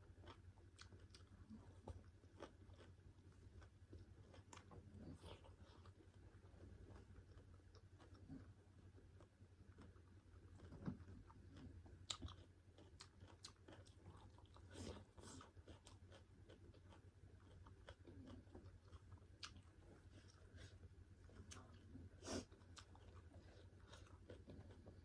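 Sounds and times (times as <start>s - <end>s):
chewing and wet mouth clicks: 0.2s - 2.9s, 9.2s - 20.6s.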